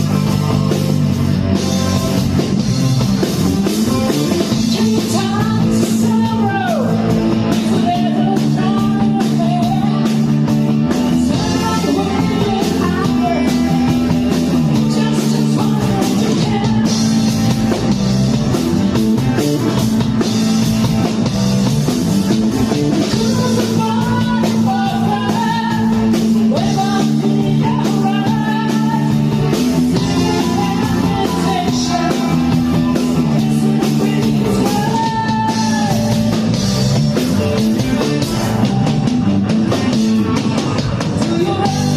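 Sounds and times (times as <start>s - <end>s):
rock band playing: 0.0s - 41.9s
person singing: 4.1s - 17.7s, 22.8s - 36.5s, 41.0s - 41.9s.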